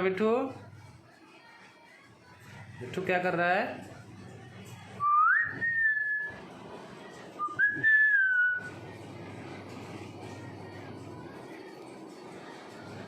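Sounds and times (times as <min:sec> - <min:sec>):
parrot whistling: 0:05.0 - 0:06.4, 0:07.4 - 0:08.7.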